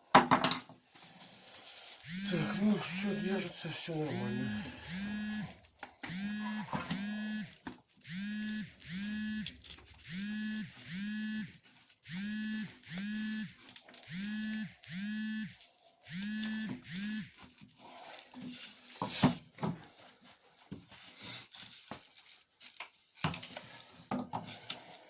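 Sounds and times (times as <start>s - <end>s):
metal detector buzzy target tones: 2.0s - 17.4s.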